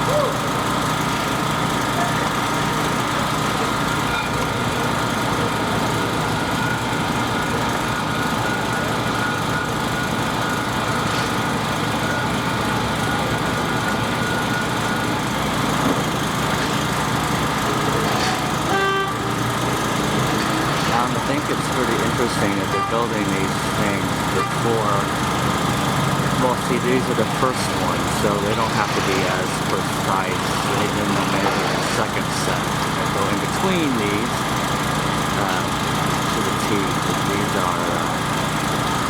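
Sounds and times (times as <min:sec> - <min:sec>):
construction machinery engine running: 0:00.0 - 0:39.0
short horn-like tone: 0:18.6 - 0:19.6.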